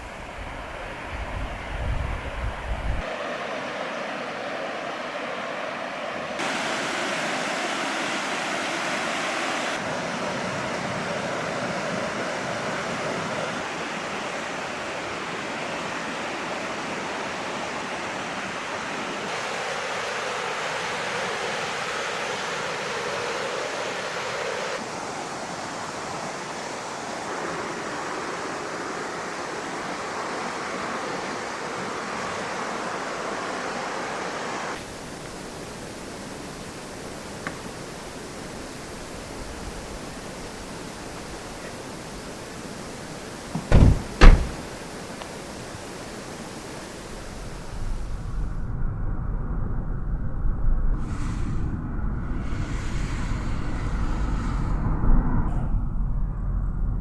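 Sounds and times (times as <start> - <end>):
river white water rushing: 3.0 - 47.8.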